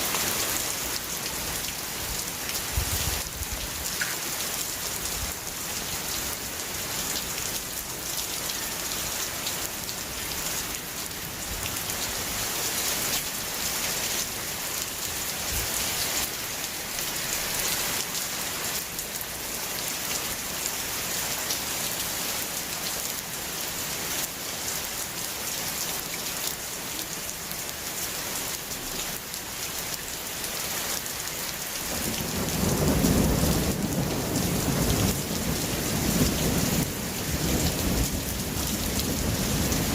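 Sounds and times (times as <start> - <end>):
low rumble of thunder: 32.0 - 39.9.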